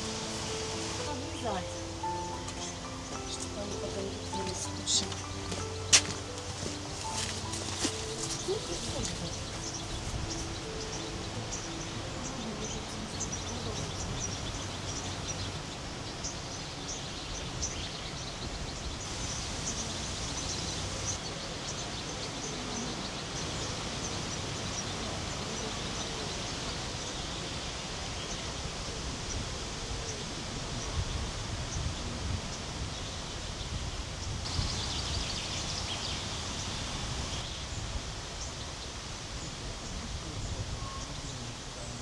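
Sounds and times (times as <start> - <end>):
high bird chirps: 0.0 - 18.1.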